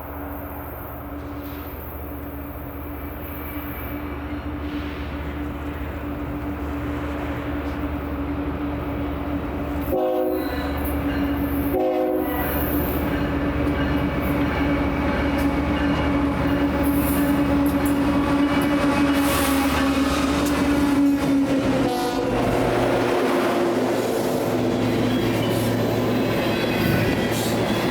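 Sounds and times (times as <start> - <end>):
train rumbling: 0.0 - 27.9
locomotive horn blasts: 9.8 - 10.9, 11.6 - 12.6, 20.6 - 22.5.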